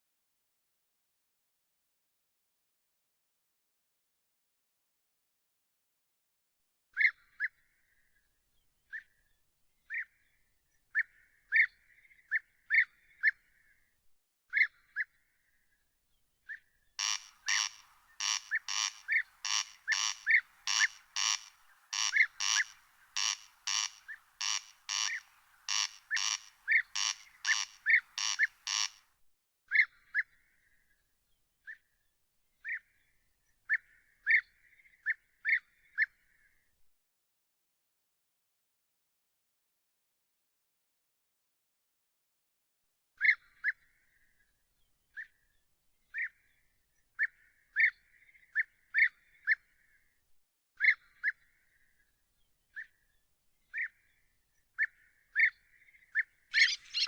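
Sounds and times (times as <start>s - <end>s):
animal calling: 17.0s - 29.0s, 56.5s - 57.0s
harsh rasping animal calls: 17.0s - 29.0s, 56.5s - 57.0s.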